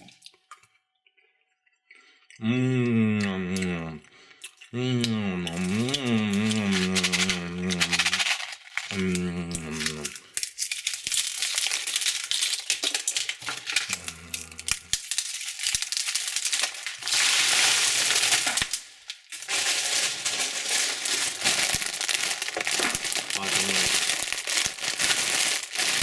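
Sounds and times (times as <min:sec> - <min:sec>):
wrappers crinkling: 0:05.5 - 0:26.0.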